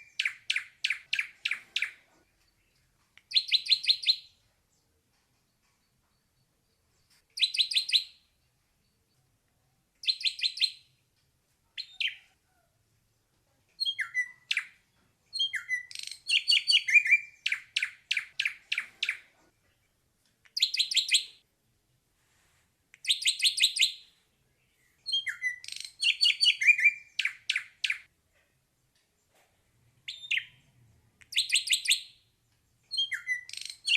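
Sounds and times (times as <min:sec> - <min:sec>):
bird singing repeated notes: 0:00.0 - 0:04.4, 0:05.4 - 0:09.3, 0:10.0 - 0:11.0, 0:13.8 - 0:19.3, 0:20.5 - 0:21.4, 0:23.0 - 0:28.1, 0:30.0 - 0:30.7, 0:31.3 - 0:33.9.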